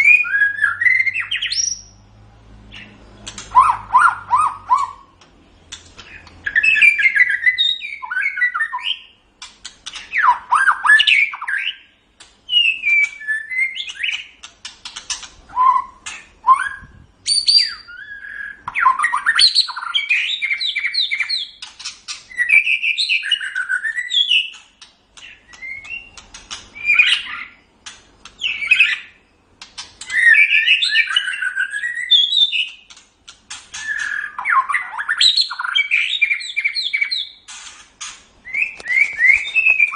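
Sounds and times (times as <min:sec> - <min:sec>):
bird singing whistles and trills: 0:00.0 - 0:02.0, 0:02.7 - 0:05.2, 0:06.0 - 0:09.2, 0:09.8 - 0:27.7, 0:28.3 - 0:29.4, 0:30.0 - 0:33.0, 0:33.7 - 0:37.6, 0:38.4 - 0:39.9.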